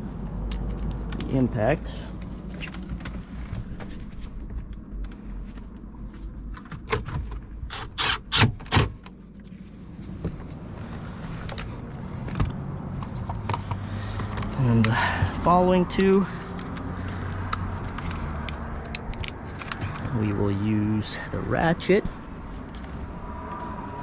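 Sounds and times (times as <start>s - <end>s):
impact driver driving screws: 7.7s - 8.8s
clicks and rattles of handling: 15.9s - 20.2s.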